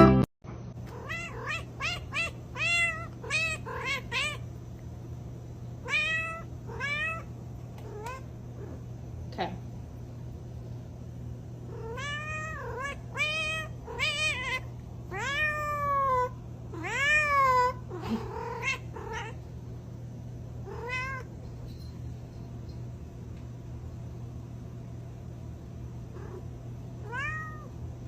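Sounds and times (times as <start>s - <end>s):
cat meowing: 0.9s - 4.4s, 5.8s - 7.3s, 11.7s - 19.4s, 20.7s - 21.3s, 27.0s - 27.7s.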